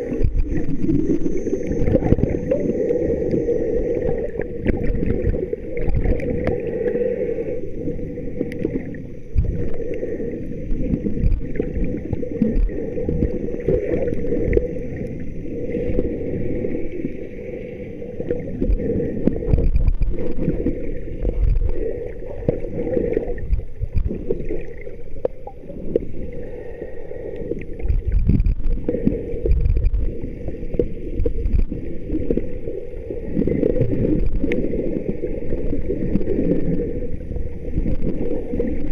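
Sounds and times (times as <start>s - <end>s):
muffled water sloshing: 0.0s - 38.9s.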